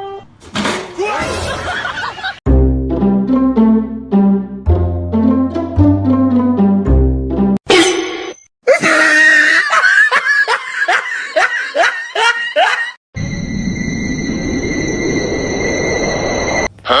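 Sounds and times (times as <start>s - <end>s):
person laughing hard: 1.2s - 2.4s, 8.7s - 13.0s.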